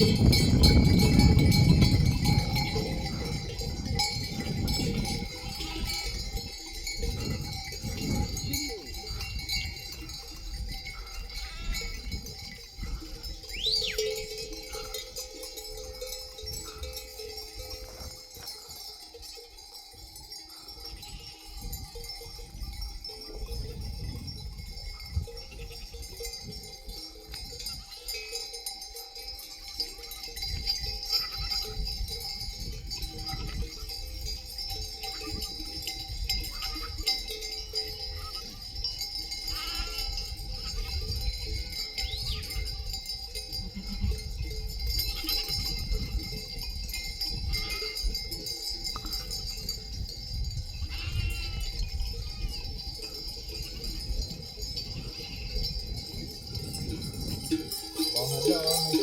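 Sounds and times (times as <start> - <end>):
sheep bells clinking: 0.0 - 59.0
sheep bleating: 5.4 - 6.2, 11.2 - 12.0, 39.5 - 40.8, 50.9 - 51.7, 58.1 - 59.0.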